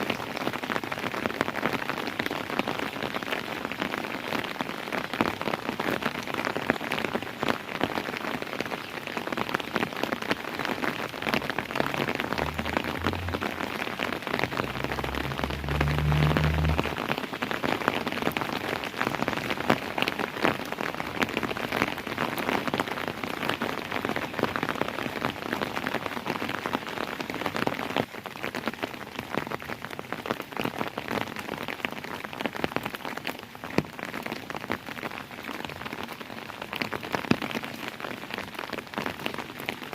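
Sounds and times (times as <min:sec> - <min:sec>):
heavy rain: 0:00.0 - 0:39.9
raindrops pattering on surfaces: 0:00.0 - 0:39.9
low rumble: 0:11.6 - 0:17.3.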